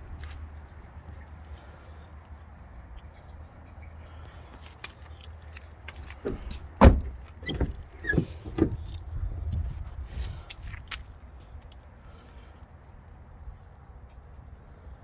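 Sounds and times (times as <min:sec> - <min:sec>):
clunks and knocks on truck body: 0:06.0 - 0:09.0.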